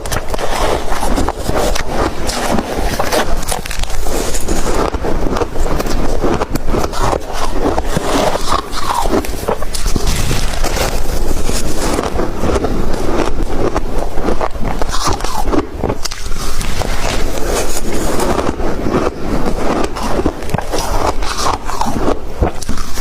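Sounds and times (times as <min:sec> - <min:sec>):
crunching and chewing ice: 0:00.0 - 0:23.0.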